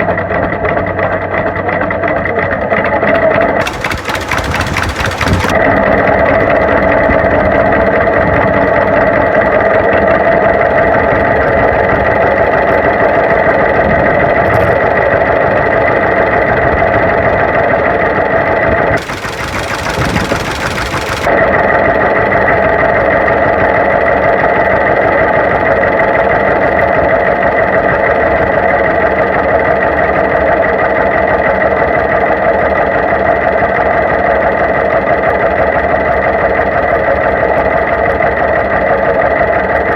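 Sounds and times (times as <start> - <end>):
tractor engine running: 3.6 - 5.6, 19.0 - 21.4.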